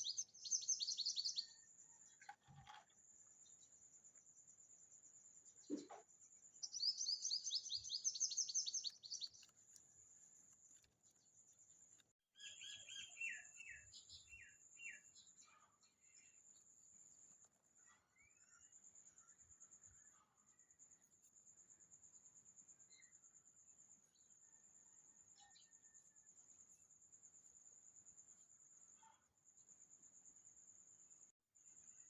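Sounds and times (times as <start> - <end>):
insect chirring: 0.0 - 15.3
small birds singing: 0.0 - 21.1, 22.8 - 26.8.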